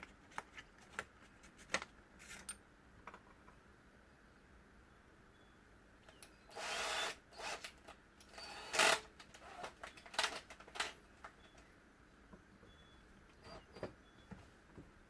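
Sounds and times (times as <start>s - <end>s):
power drill drilling into metal: 6.5s - 7.7s, 8.4s - 9.7s.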